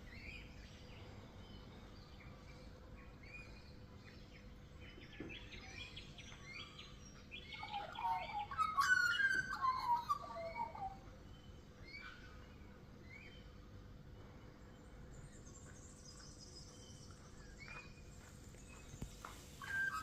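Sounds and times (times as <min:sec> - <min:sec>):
magpie warbling song: 0:07.4 - 0:11.0, 0:19.6 - 0:20.0.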